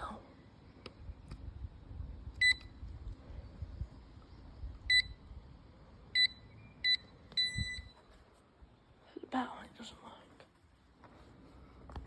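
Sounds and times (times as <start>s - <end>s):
short electronic doorbell beeps: 2.4s - 2.7s, 4.9s - 5.2s, 6.2s - 8.0s.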